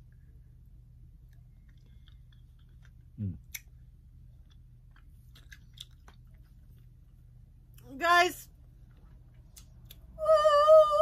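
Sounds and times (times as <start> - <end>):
low mm hum: 0.0 - 11.0
chewing sticky candy: 1.2 - 7.0.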